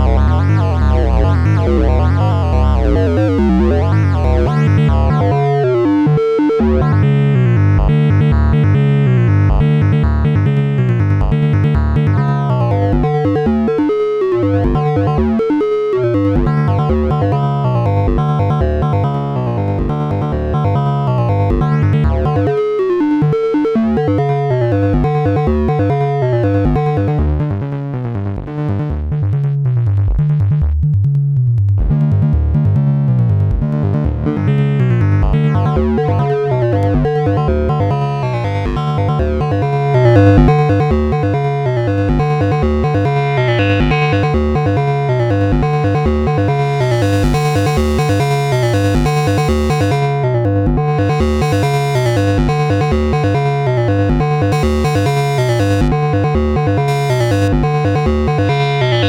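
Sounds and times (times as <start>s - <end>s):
sequenced synth bass line: 0.0s - 15.6s, 16.2s - 22.8s, 31.8s - 59.0s
layered synth parts: 39.8s - 41.2s, 46.0s - 50.4s, 51.1s - 53.4s, 54.4s - 59.0s.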